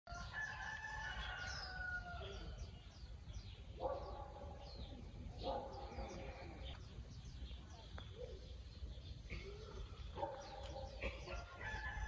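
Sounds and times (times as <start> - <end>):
bird calls: 0.1 - 12.0
small birds chirping: 0.1 - 12.0.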